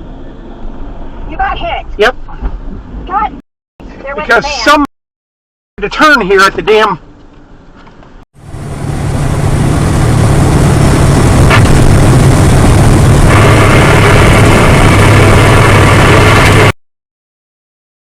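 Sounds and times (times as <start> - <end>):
vehicle engine and road noise: 0.0 - 4.9, 5.8 - 16.8
low hum: 8.4 - 16.8.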